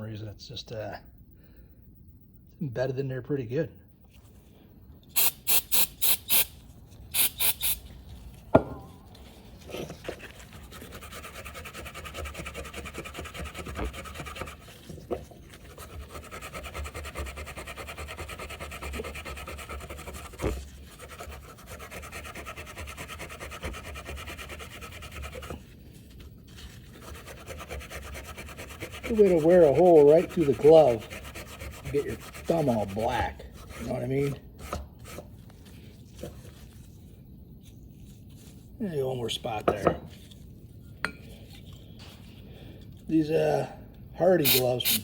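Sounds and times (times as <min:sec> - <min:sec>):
aerosol spray bursts: 0:05.2 - 0:06.6, 0:07.2 - 0:07.8, 0:44.4 - 0:45.0.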